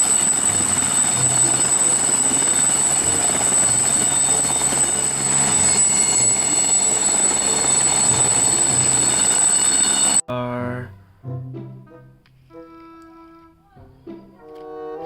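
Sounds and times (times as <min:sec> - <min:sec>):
helicopter rotor and engine: 0:00.0 - 0:10.2
high-pitched whine: 0:00.0 - 0:10.2.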